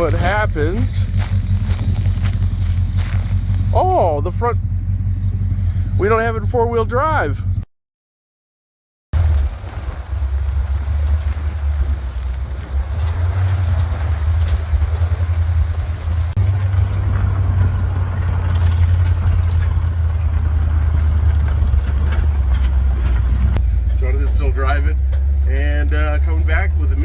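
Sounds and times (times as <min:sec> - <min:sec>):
car engine rumbling while driving: 0:00.0 - 0:07.7, 0:09.2 - 0:27.0
faint rattles: 0:09.2 - 0:26.6.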